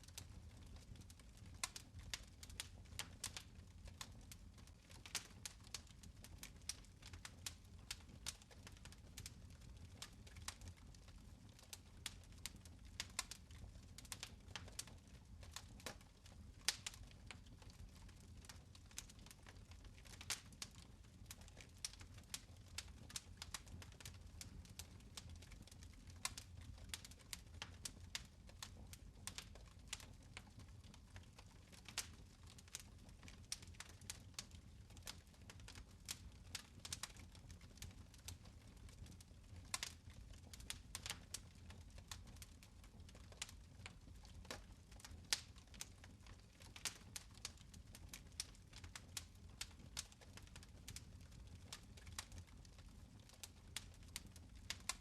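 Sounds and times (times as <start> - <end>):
fire crackling and popping: 0.0 - 55.0.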